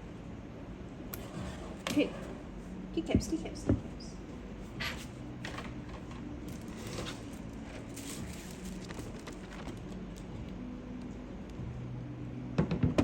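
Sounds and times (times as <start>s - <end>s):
low steady hum: 0.0s - 13.0s
packaging clicks and rustling: 5.6s - 10.6s.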